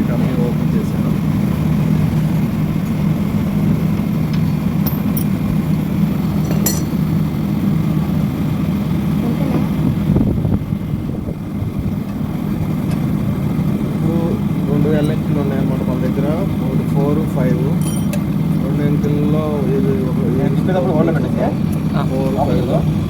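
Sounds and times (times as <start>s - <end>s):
air conditioner unit humming: 0.0s - 23.0s
light metallic clinks: 6.4s - 7.0s, 17.8s - 18.3s.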